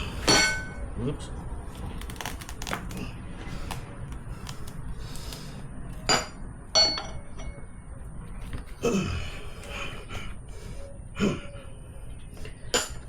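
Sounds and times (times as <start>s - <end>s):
tire irons clinking on metal: 0.2s - 0.8s, 6.0s - 7.8s, 12.6s - 13.0s.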